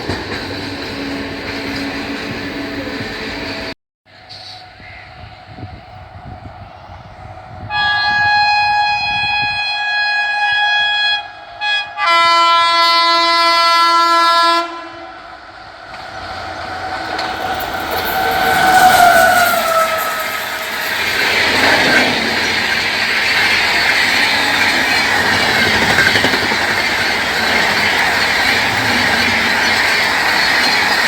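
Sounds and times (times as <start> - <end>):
approaching train rumble: 0.0 - 31.0
train horn blasts: 4.3 - 15.6, 17.2 - 21.2.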